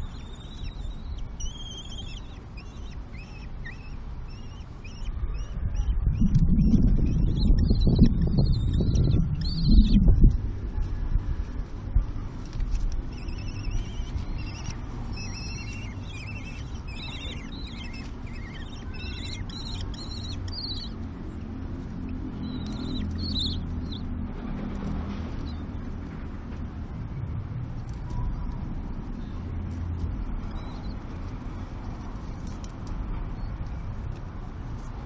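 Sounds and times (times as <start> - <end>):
kestrels calling: 0.0 - 10.4, 13.0 - 24.1, 30.3 - 32.6
low rumble of road traffic: 0.0 - 35.0.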